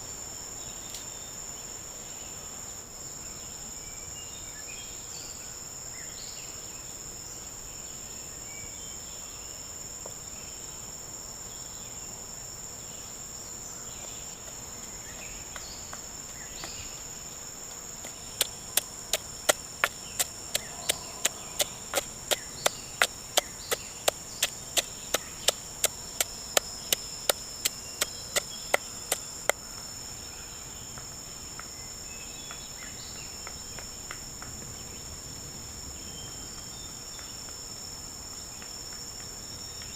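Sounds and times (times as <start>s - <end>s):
insect chorus: 0.0s - 39.9s
sharp evenly paced knocks: 18.1s - 29.2s.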